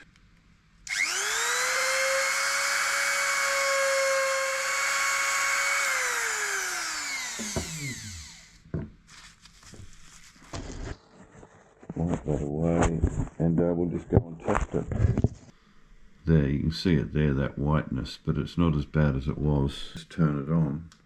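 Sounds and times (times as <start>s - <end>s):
rotary tool whining: 0.9s - 8.6s.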